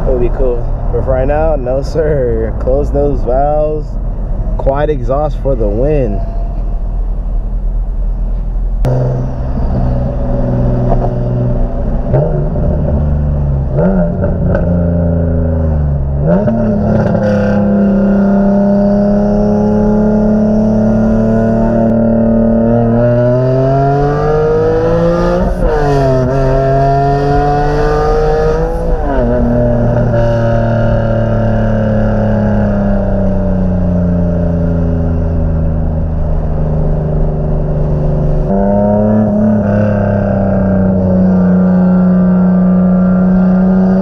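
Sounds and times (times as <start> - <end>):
car engine revving through gear shifts: 8.8 - 44.0.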